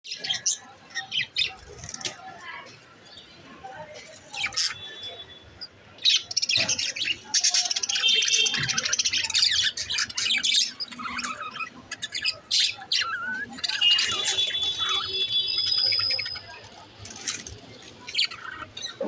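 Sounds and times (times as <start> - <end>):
parakeet chirping and warbling: 4.2 - 19.0.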